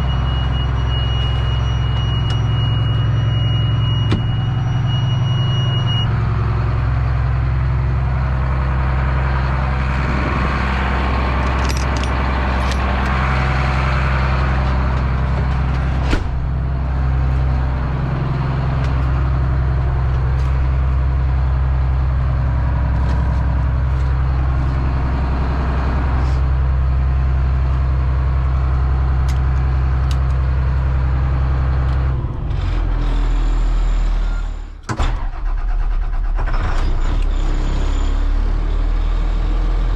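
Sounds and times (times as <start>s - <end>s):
diesel bus engine droning: 0.0s - 39.9s
clicks and rattles: 11.4s - 13.2s.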